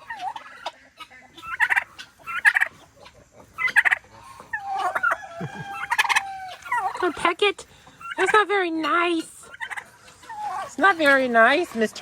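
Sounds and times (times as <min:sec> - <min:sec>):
turkey rattling calls: 0:00.0 - 0:11.8.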